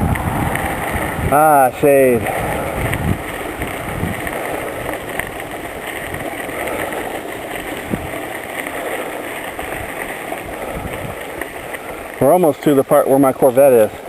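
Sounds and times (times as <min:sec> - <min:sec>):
bicycle tyres rolling on trail: 0:00.0 - 0:14.0.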